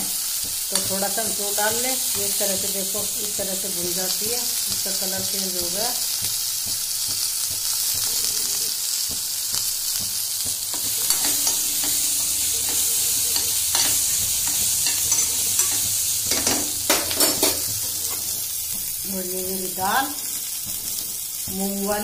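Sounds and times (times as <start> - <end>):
chillies sizzling in oil: 0.0 - 22.0
steel spoon scraping and clinking: 10.7 - 18.3.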